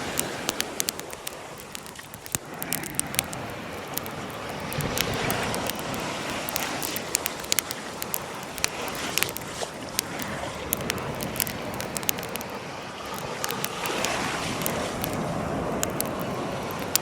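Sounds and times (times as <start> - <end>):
bonfire crackling and popping: 0.0 - 17.0
surf washing: 0.0 - 17.0.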